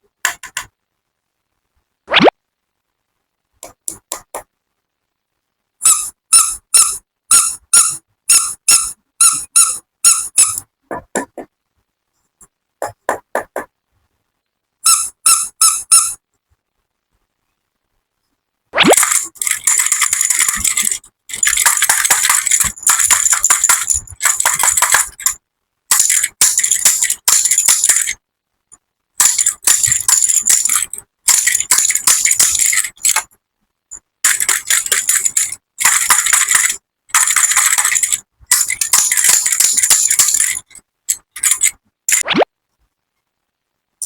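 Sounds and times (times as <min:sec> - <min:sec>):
candies clattering into container: 0:18.9 - 0:25.3, 0:34.3 - 0:40.6.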